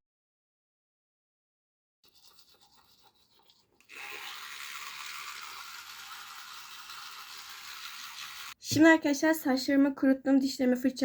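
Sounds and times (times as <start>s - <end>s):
toothbrush scrubbing teeth: 2.0s - 8.6s.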